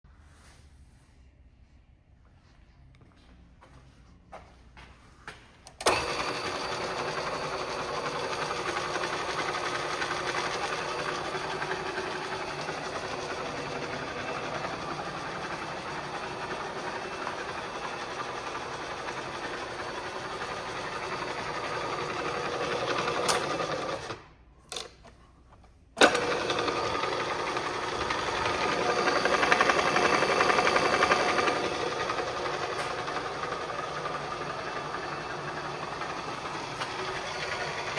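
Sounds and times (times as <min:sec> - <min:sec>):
milling machine motor running: 0:05.8 - 0:24.2, 0:26.0 - 0:37.9.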